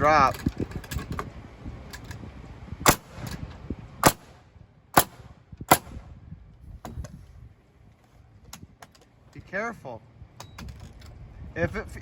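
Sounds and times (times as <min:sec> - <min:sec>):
pneumatic nail gun firing: 0:02.9 - 0:03.4, 0:04.0 - 0:04.3, 0:05.0 - 0:06.0.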